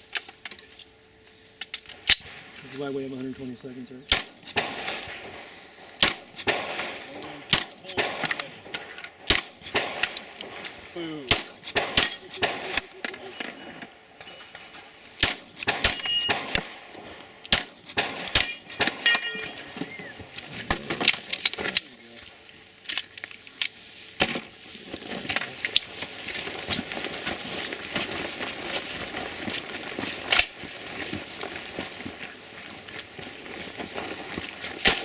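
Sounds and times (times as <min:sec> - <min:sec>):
metallic clangs of steel targets: 0:06.0 - 0:20.1
soft footsteps: 0:24.6 - 0:34.9.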